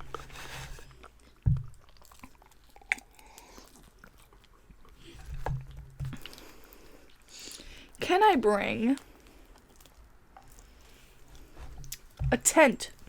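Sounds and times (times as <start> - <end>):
chewing and biting food: 0.0 - 8.0, 8.9 - 12.2
dull low thump: 1.5 - 1.8.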